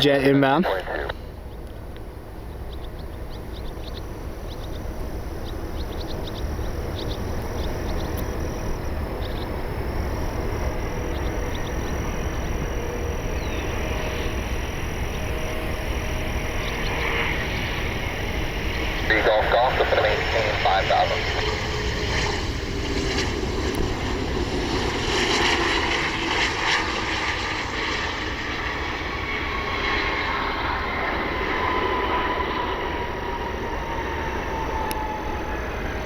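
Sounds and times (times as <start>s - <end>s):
jet engine noise: 0.0s - 36.0s
wind rumbling on microphone: 1.3s - 26.4s.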